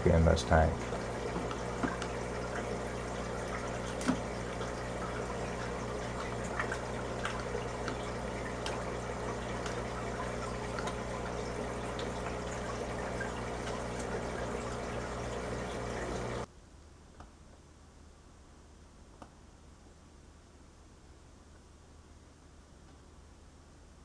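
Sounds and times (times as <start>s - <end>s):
pump humming: 0.0s - 16.5s
water trickling and bubbling: 0.0s - 16.5s
water drips and pops: 0.8s - 16.5s.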